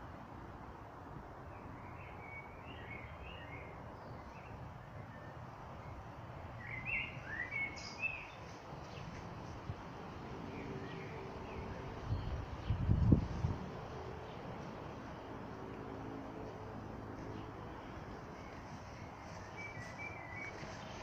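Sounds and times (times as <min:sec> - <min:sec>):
steady outdoor hiss: 0:00.0 - 0:21.0
small birds chirping: 0:01.6 - 0:09.7, 0:17.1 - 0:21.0.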